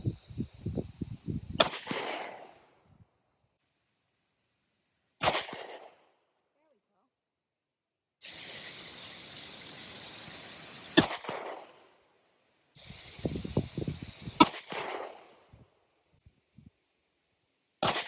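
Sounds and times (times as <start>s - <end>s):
background hiss: 0.0s - 7.4s, 8.1s - 18.0s
gunshots with echo: 5.2s - 5.9s.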